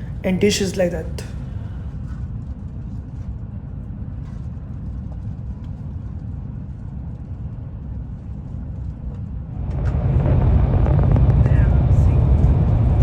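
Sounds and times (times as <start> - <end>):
train rumbling: 0.0 - 2.1, 9.2 - 13.0.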